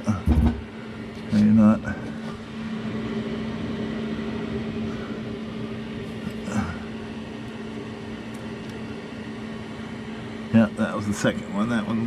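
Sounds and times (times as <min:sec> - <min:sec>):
steady low machine hum: 0:00.0 - 0:12.0
faint short knocks: 0:00.2 - 0:00.7.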